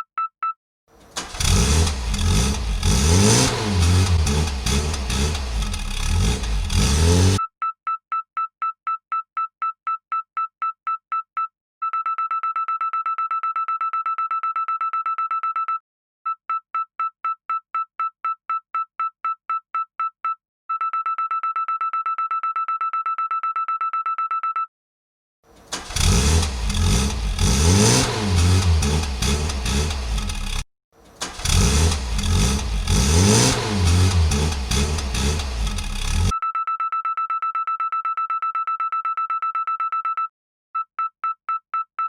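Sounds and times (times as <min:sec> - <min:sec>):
engine revving: 0:01.0 - 0:07.4, 0:25.5 - 0:36.3.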